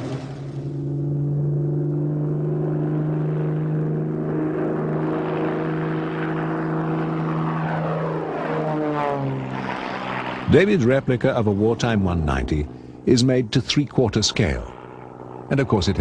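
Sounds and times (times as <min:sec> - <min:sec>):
propeller aircraft engine droning: 0:00.0 - 0:16.0.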